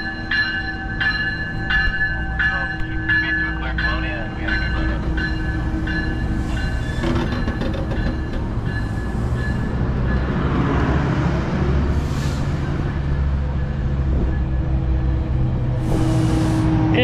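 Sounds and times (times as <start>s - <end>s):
train cars rolling past: 0.0s - 17.0s.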